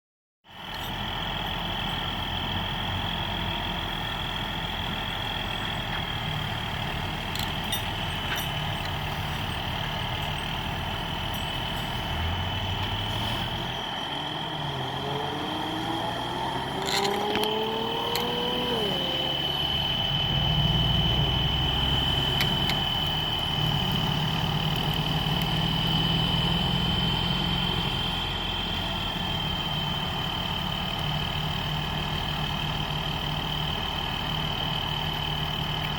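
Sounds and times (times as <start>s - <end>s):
tow truck engine running: 0.5s - 35.9s
high-pitched whine: 7.4s - 30.2s.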